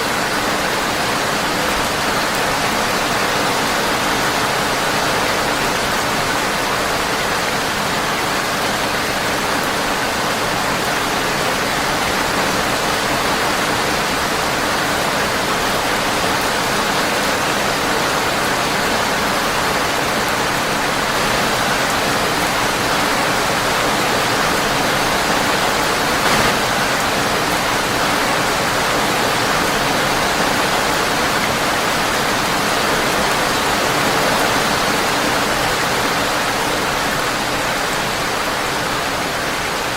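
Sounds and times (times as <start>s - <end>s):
rain on a windowpane: 0.0s - 39.9s
brief pop: 26.2s - 26.8s.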